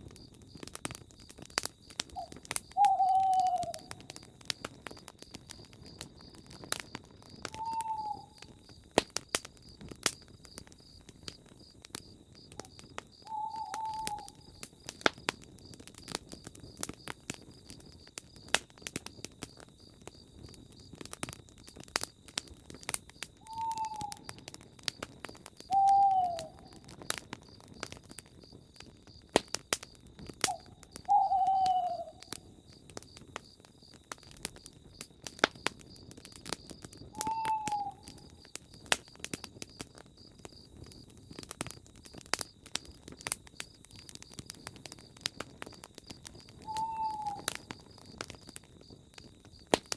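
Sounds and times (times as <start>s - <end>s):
campfire crackling and popping: 0.0s - 49.9s
crickets chirping: 0.0s - 49.9s
owl hooting: 2.2s - 4.0s, 7.5s - 8.5s, 13.3s - 14.5s, 23.4s - 24.2s, 25.7s - 26.8s, 30.5s - 32.3s, 37.2s - 38.2s, 46.6s - 47.5s.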